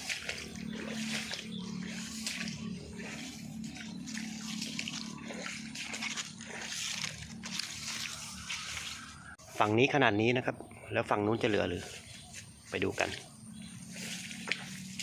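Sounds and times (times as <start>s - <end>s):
floodwater running and splashing: 0.0s - 9.4s, 13.0s - 15.0s
low steady drone: 0.0s - 9.6s.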